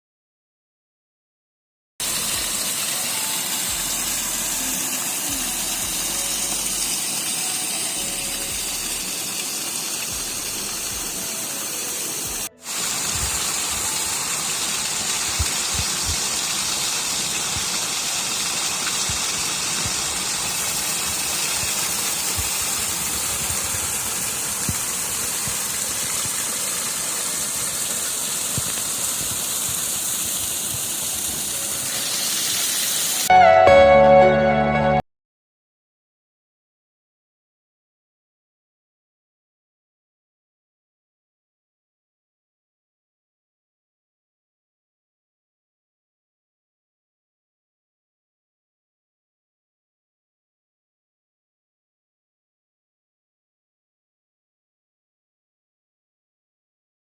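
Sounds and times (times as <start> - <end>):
stream rushing down a gully: 2.0 - 33.3.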